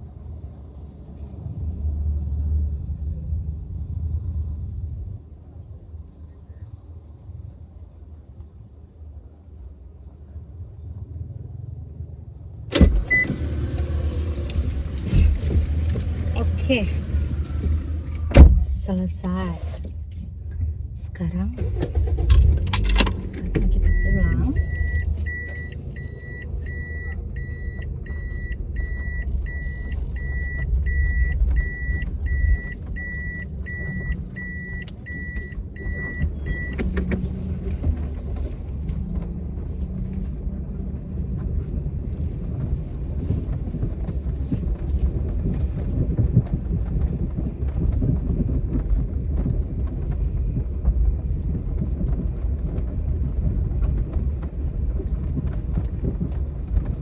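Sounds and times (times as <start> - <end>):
car engine rumble: 0.0 - 57.0
car warning chime beeping: 12.8 - 13.3, 23.7 - 36.8.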